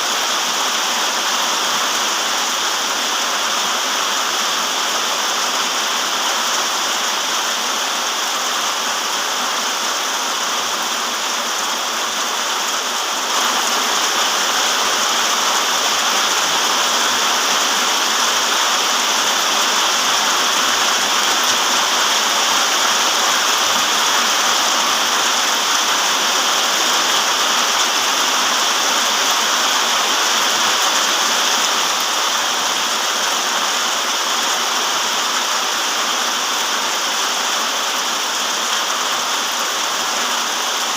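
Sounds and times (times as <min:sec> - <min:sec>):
heavy rain downpour: 0:00.0 - 0:40.9.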